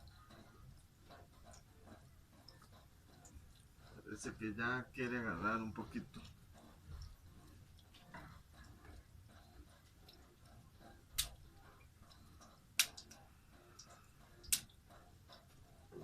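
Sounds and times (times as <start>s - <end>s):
fire popping: 5.4s - 15.4s.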